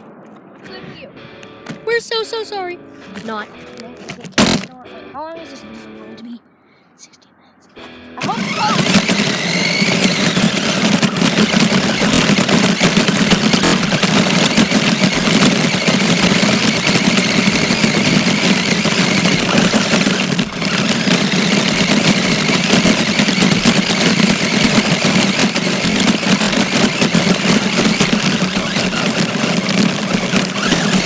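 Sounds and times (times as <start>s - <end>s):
rc car rushing noise: 4.0s - 4.7s, 8.2s - 31.0s.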